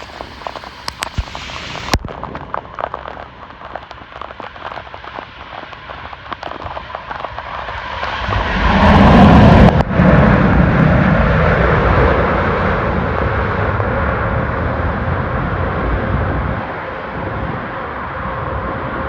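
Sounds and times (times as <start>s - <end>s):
light rain taps: 0.0s - 8.8s
jet engine roar: 0.0s - 19.0s.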